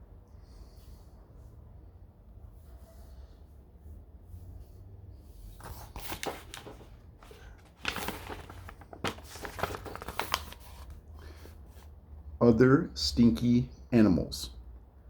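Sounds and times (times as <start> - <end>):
paper rustling and crinkling: 5.6 - 11.9.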